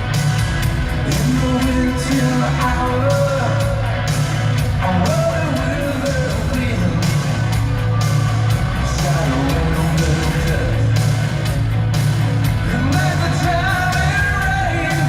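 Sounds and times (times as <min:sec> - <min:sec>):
live hard rock band: 0:00.0 - 0:15.0
person singing lead vocal: 0:00.9 - 0:07.7, 0:08.5 - 0:11.2, 0:12.6 - 0:15.0.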